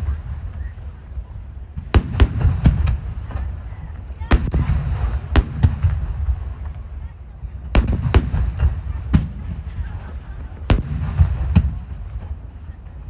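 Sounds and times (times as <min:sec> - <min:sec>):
low rumble of echoing blasts: 0:00.0 - 0:13.0
firework shells booming: 0:02.0 - 0:06.8, 0:07.6 - 0:10.0, 0:10.6 - 0:12.5.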